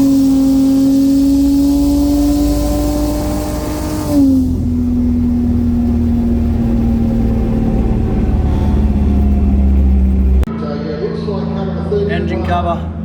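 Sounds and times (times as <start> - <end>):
car engine at full throttle: 0.0 - 13.0.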